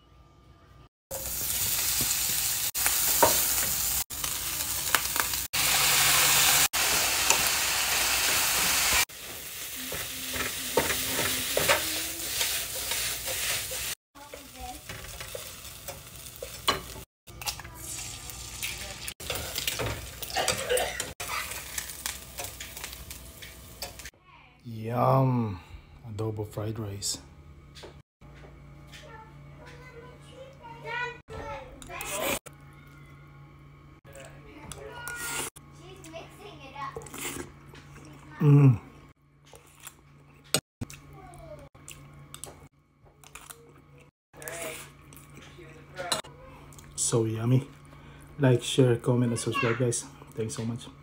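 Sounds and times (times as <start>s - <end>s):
food sizzling in hot oil: 1.1s - 24.1s.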